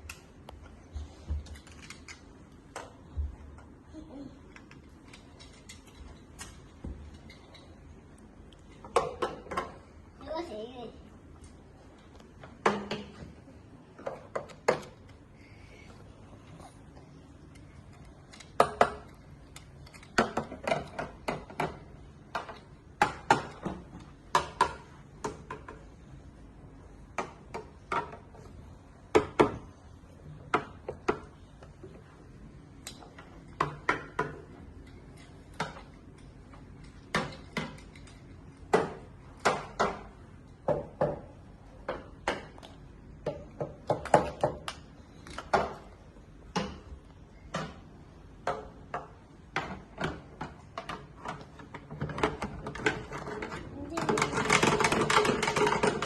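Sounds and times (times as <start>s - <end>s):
hard objects knocking and clattering: 8.7s - 9.9s, 19.9s - 26.1s, 27.1s - 29.8s, 33.0s - 56.0s.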